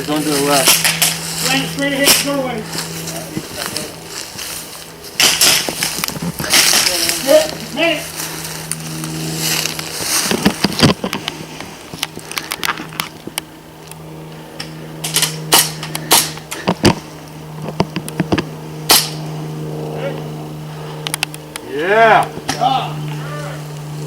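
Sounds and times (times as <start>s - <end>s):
steady low buzz: 0.0s - 24.0s
airsoft gunfire pops: 18.9s - 19.2s.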